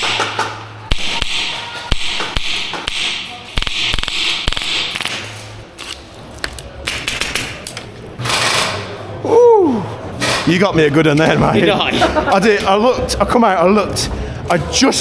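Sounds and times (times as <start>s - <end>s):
airsoft gun shots: 0.0s - 5.4s.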